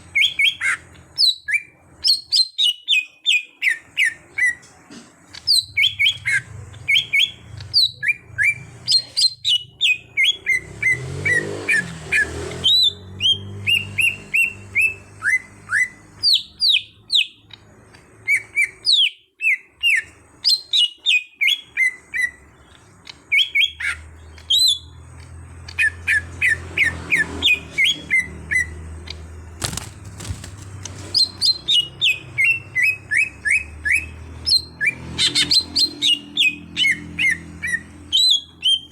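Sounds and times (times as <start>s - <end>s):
bird singing whistled chirps: 31.1s - 38.9s.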